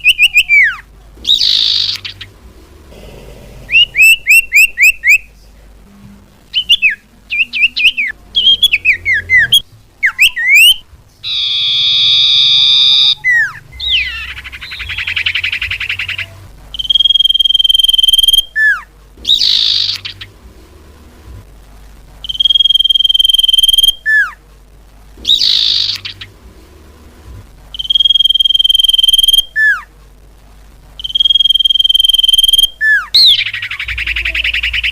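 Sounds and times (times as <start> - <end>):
bird chirps and whistles: 0.0 - 2.3, 3.7 - 5.3, 6.5 - 20.3, 22.2 - 24.3, 25.2 - 26.3, 27.8 - 29.8, 31.0 - 34.9
rattling bird trill: 0.0 - 2.4, 3.7 - 5.2, 19.2 - 20.3, 25.2 - 26.3
harsh buzzy bird call: 0.0 - 5.3, 6.5 - 20.4, 25.2 - 26.4, 31.0 - 34.9.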